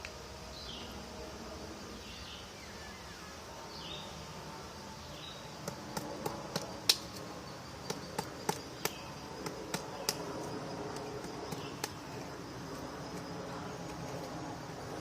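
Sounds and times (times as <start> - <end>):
background noise: 0.0 - 15.0
woodpecker pecking at wood: 5.6 - 7.2.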